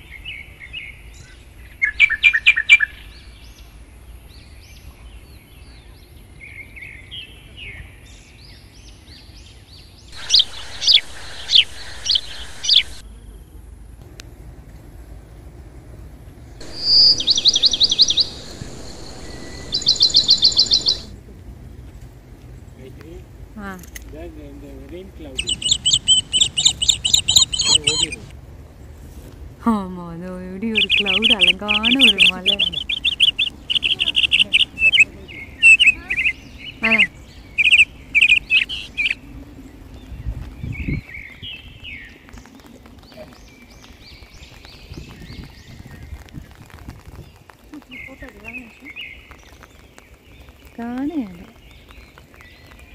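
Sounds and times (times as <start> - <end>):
birds chirping: 0.1 - 13.5, 16.5 - 21.3, 22.6 - 28.8, 30.6 - 52.9
songbird whistling and chirping: 10.2 - 13.0, 16.6 - 21.1, 25.3 - 28.3, 30.7 - 39.2
brief low rumble: 16.6 - 21.2.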